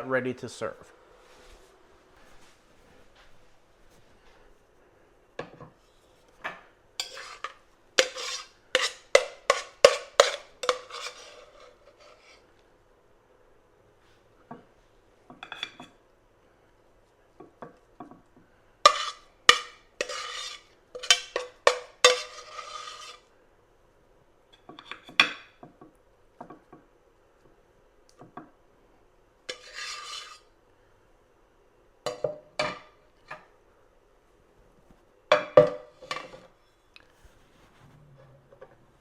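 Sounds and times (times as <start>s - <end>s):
plates and utensils clinking: 7.0s - 12.3s, 18.9s - 23.2s
utensils scraping: 7.0s - 12.4s, 18.9s - 23.2s, 29.5s - 30.4s.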